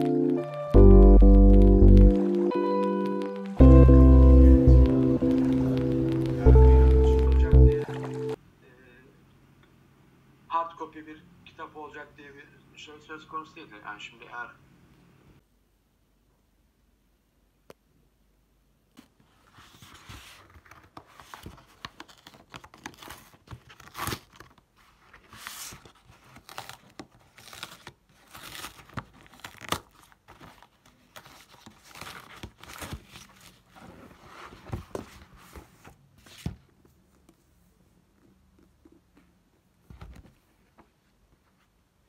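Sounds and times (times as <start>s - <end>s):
crinkly material rustling and tearing: 19.7s - 36.4s.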